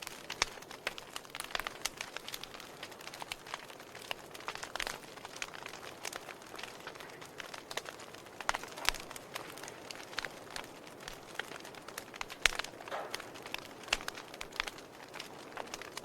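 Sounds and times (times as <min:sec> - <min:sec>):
fire crackling and popping: 0:00.0 - 0:16.0
soft steady hiss: 0:00.0 - 0:16.0.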